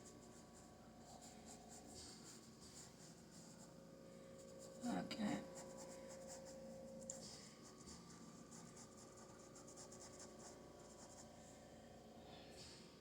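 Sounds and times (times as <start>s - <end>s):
paintbrush strokes on canvas: 0.0s - 3.8s
low steady hum: 0.0s - 13.0s.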